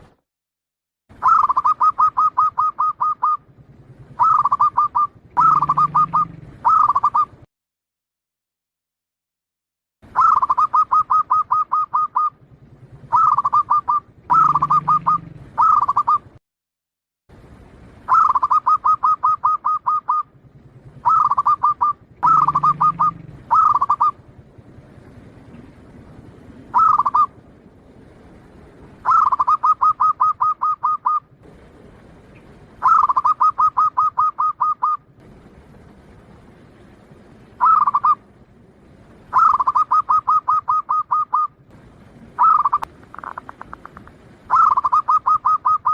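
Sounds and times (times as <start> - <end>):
dove cooing: 1.2 - 7.4, 10.2 - 16.4, 18.1 - 24.3, 25.0 - 27.4, 28.8 - 31.6, 32.3 - 35.1, 37.5 - 38.3, 39.3 - 45.9.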